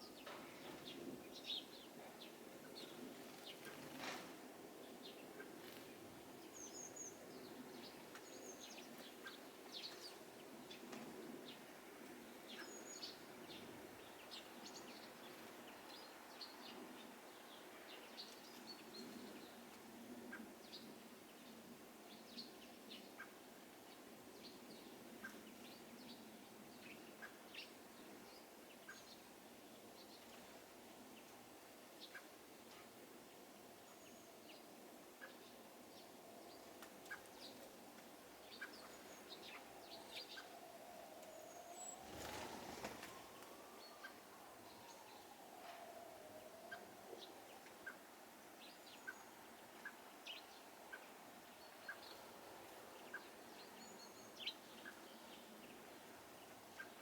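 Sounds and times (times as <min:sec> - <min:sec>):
low background noise: 0:00.0 - 0:57.0
small birds chirping: 0:32.0 - 0:57.0.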